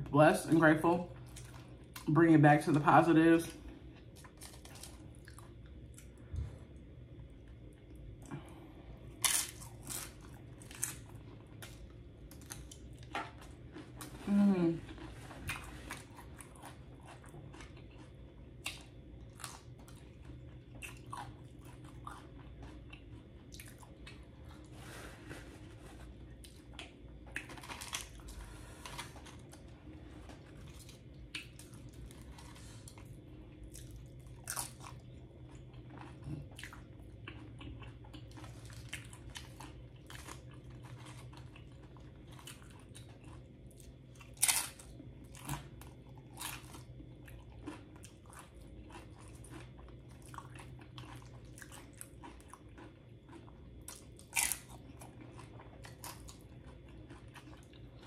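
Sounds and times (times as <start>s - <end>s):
low steady hum: 0.0s - 58.0s
chewing food: 1.1s - 58.0s
chips crunching: 47.6s - 58.0s.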